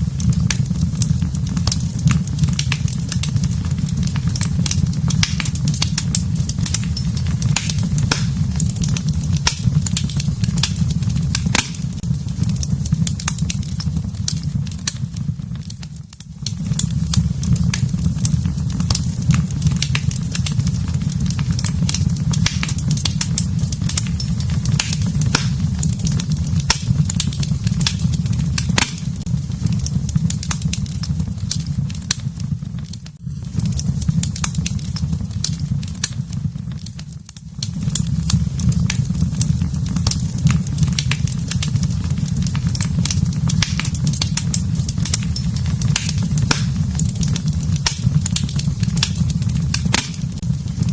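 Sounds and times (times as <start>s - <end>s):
low rumble of flames: 0.0s - 50.9s
wood fire crackling: 0.0s - 50.9s
sharp pops and snaps: 4.1s - 15.0s, 15.8s - 20.6s, 21.5s - 29.3s, 42.4s - 50.5s.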